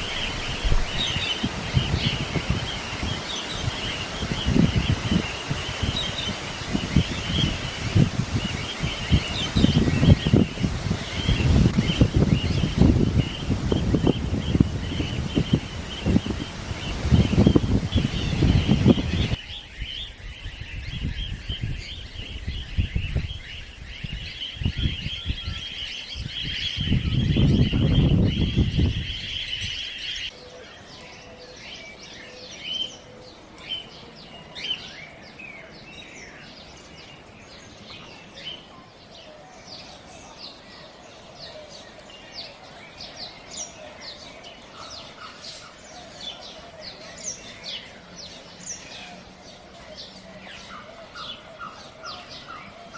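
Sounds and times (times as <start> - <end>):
flock of cockatiels calling: 0.0 - 19.4, 39.6 - 52.9
wind buffeting microphone: 0.0 - 29.8.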